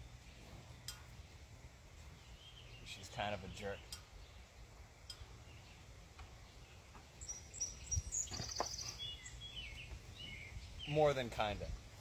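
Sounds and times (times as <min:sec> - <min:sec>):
bird chirping: 0:02.0 - 0:11.3.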